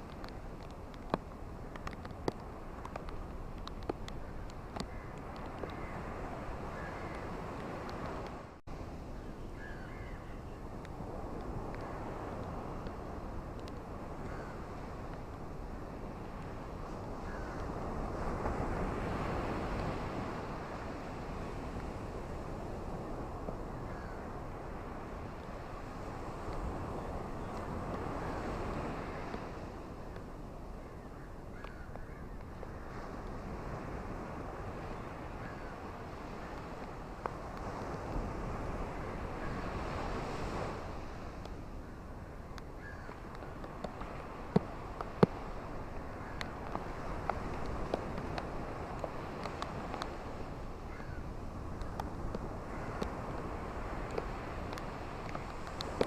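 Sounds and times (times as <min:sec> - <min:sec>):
raindrop taps close by: 0:00.0 - 0:05.8
steady rain: 0:00.0 - 0:08.6
ocean surf washing on shore: 0:00.0 - 0:56.0.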